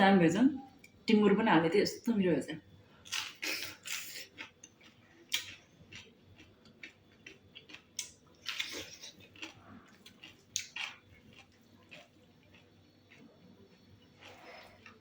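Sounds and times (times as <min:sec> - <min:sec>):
person chewing food: 0:03.0 - 0:15.0.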